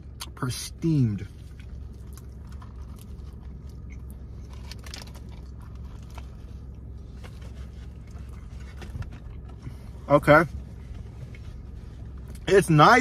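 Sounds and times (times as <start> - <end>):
steady low hum: 0.0 - 13.0
person chewing food: 1.4 - 9.6.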